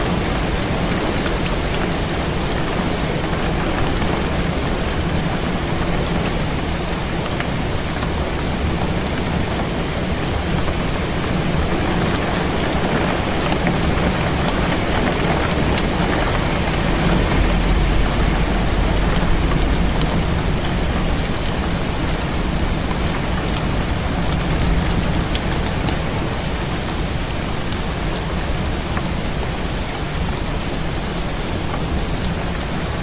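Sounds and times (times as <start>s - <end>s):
heavy rain falling: 0.0s - 33.0s
deep low rumble: 14.8s - 25.9s.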